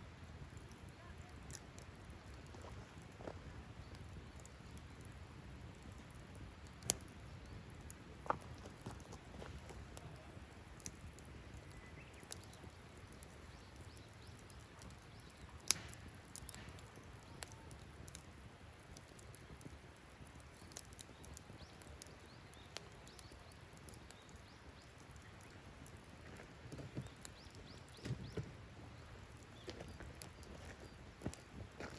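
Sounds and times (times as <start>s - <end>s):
campfire crackling and popping: 0.0s - 31.9s
soft low hiss: 0.0s - 31.9s.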